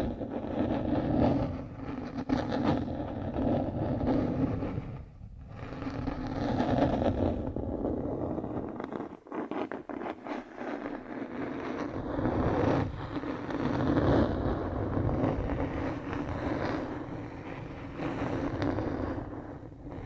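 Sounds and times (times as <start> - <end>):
close scraping and rubbing: 0.0 - 20.0.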